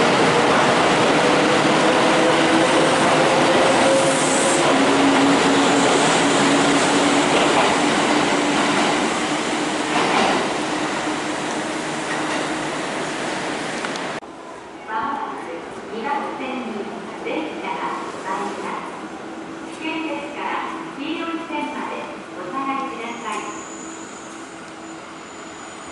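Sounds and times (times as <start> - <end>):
train wheels rolling on rails: 0.0 - 14.2.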